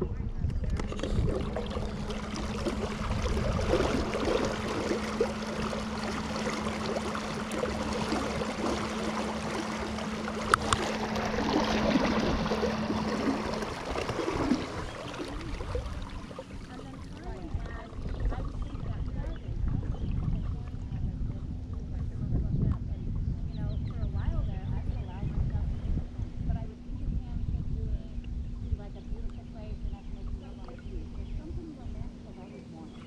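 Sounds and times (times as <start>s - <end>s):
water gurgling and splashing: 0.0s - 28.0s
electric motor humming: 0.6s - 18.8s.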